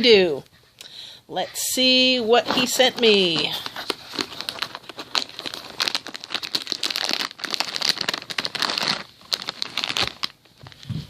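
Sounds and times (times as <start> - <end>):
packaging crinkling and rustling: 2.4 - 11.0.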